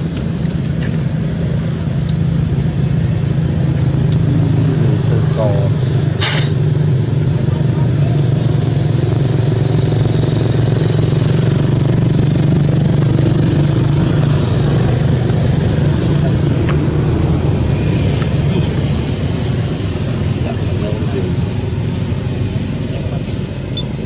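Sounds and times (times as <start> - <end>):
low engine rumble: 0.0 - 24.0
even hiss: 4.1 - 7.4.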